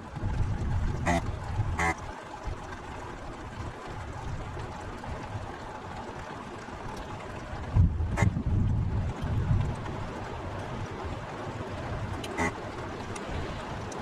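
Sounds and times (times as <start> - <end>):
heavy rain falling: 9.1 - 14.0.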